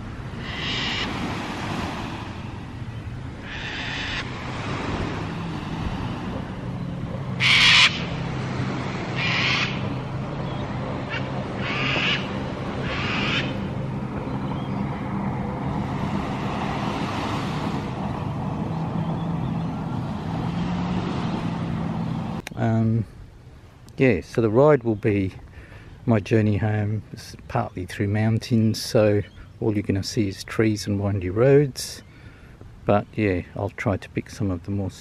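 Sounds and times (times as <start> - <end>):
bird harsh calls: 0.4 - 1.3, 2.9 - 4.4, 6.8 - 8.2, 9.1 - 15.0
engine idling hum: 4.2 - 23.6.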